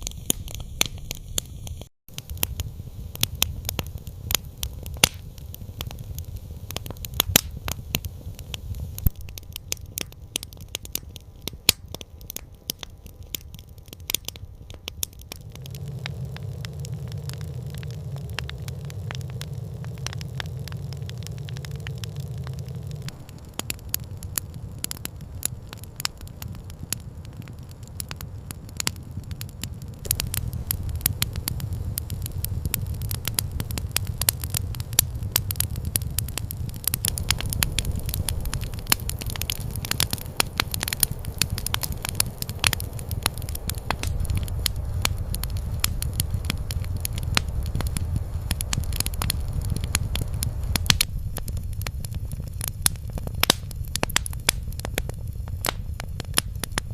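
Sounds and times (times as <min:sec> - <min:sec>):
campfire crackling: 0:00.0 - 0:56.9
low steady rumble: 0:00.0 - 0:56.9.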